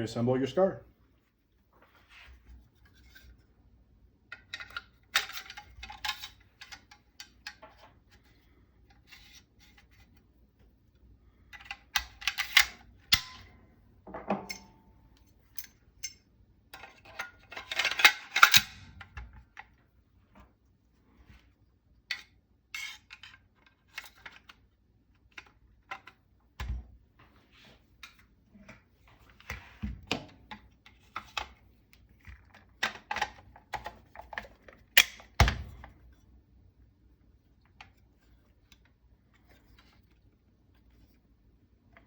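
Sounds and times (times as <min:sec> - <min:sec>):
rifle parts clicking and clacking: 0:16.8 - 0:19.1.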